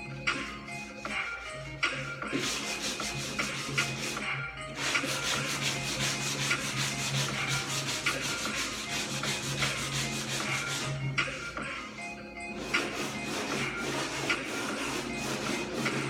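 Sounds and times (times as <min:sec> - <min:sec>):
sandpaper rubbing on metal panel: 0:02.3 - 0:04.2, 0:04.8 - 0:10.9, 0:12.6 - 0:16.0.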